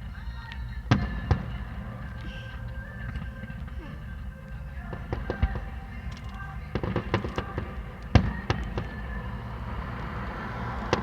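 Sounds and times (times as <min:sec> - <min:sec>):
fireworks cracking and banging: 0:04.9 - 0:05.8, 0:06.7 - 0:09.6.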